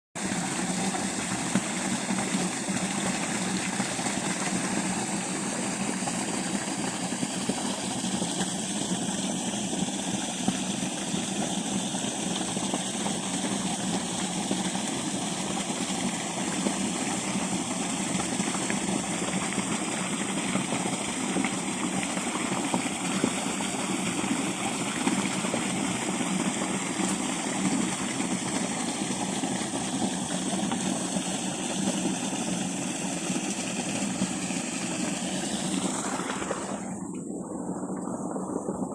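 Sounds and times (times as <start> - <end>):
pump engine running: 0.2 - 38.9
water rushing: 0.2 - 38.9.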